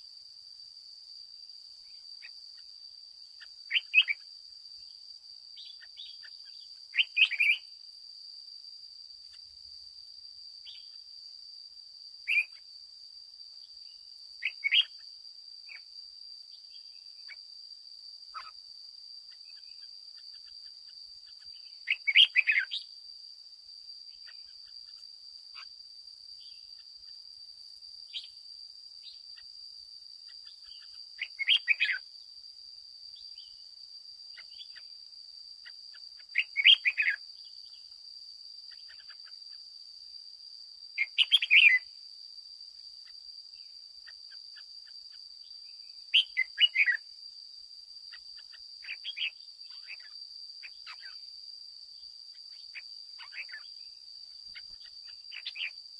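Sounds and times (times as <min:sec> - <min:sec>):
bulbul singing: 0:03.4 - 0:04.3, 0:05.6 - 0:07.7, 0:12.3 - 0:12.6, 0:13.8 - 0:15.0, 0:21.3 - 0:22.9, 0:30.4 - 0:32.0, 0:35.6 - 0:37.2, 0:41.0 - 0:41.9, 0:46.1 - 0:47.0, 0:48.4 - 0:51.2, 0:52.5 - 0:53.7, 0:54.6 - 0:55.8.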